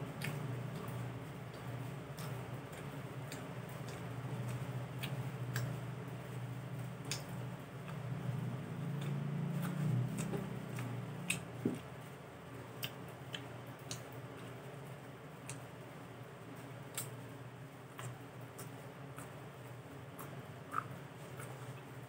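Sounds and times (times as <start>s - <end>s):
low hum: 0.0s - 12.5s
person biting and chewing cucumber: 7.0s - 11.9s, 17.9s - 19.4s, 20.1s - 21.9s.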